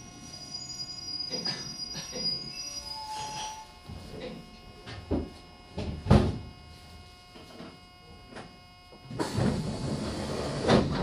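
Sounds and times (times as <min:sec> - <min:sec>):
train equipment humming: 0:00.0 - 0:11.0
train doors opening rush: 0:09.1 - 0:11.0.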